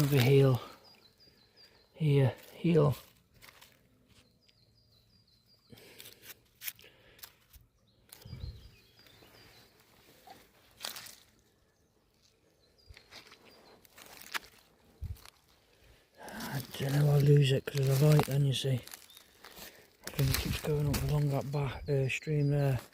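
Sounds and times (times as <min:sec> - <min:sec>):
footsteps rustling on ground: 0:00.0 - 0:00.7, 0:02.2 - 0:04.5, 0:08.1 - 0:11.5, 0:12.2 - 0:21.8
small birds chirping: 0:00.0 - 0:22.9.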